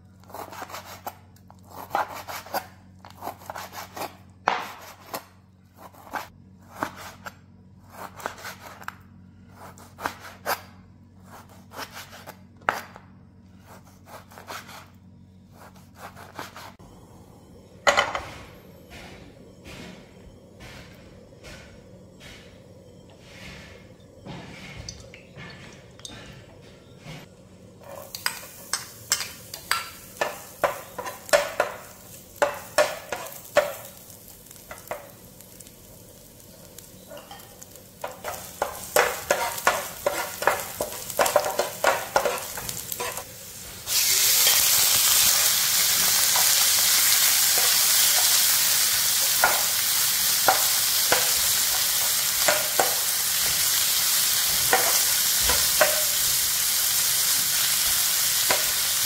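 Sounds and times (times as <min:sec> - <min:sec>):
faint sizzle: 0:13.2 - 0:59.0
metal spatula scraping frying pan: 0:37.1 - 0:43.3
loud sizzle of meat in oil: 0:42.6 - 0:59.0.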